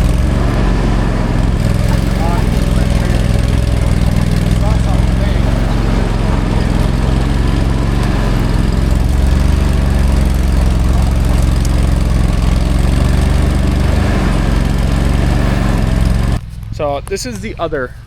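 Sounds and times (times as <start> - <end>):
small engine droning: 0.0 - 18.0.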